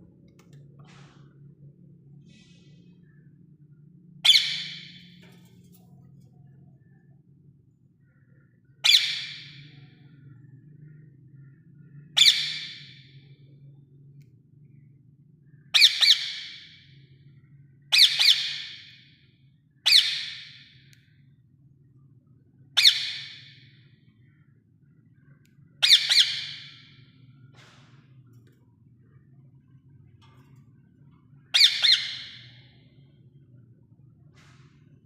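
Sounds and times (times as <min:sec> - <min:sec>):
parakeet squawking: 0:04.3 - 0:05.0, 0:08.9 - 0:09.4, 0:19.9 - 0:20.5, 0:22.8 - 0:23.4, 0:25.8 - 0:26.8, 0:31.6 - 0:32.5.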